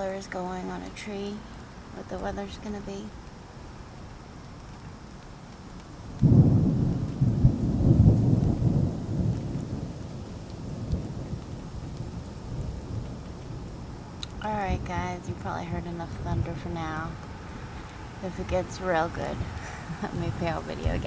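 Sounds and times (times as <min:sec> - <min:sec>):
steady rain: 0:00.0 - 0:21.0
thunderclap rumbling: 0:06.1 - 0:21.0.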